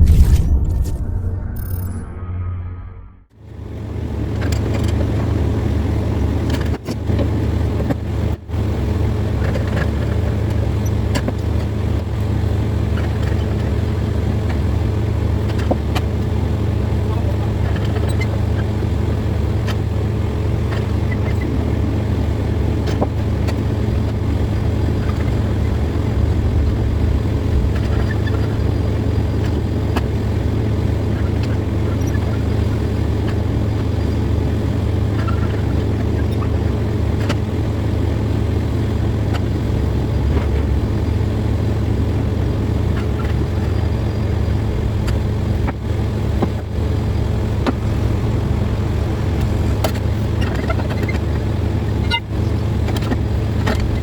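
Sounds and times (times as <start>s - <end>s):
dense rumble: 0.0s - 3.4s, 20.1s - 54.0s
vehicle engine humming: 0.0s - 54.0s.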